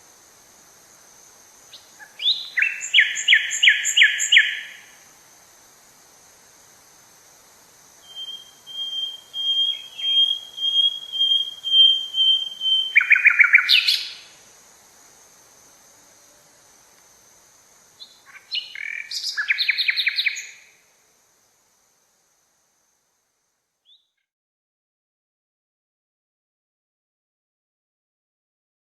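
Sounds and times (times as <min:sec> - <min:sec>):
faint forest ambience: 0:00.0 - 0:24.3
bird singing whistled notes: 0:01.7 - 0:04.9, 0:08.0 - 0:14.4, 0:18.0 - 0:20.7, 0:23.8 - 0:24.3.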